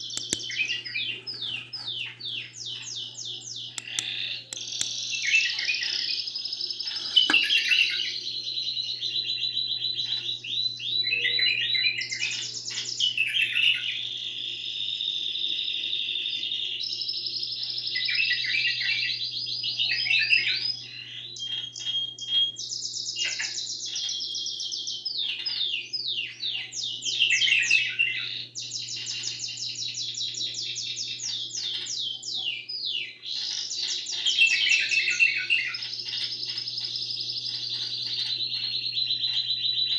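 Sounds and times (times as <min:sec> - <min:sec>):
canary singing trills: 0:00.0 - 0:14.0, 0:19.7 - 0:39.9.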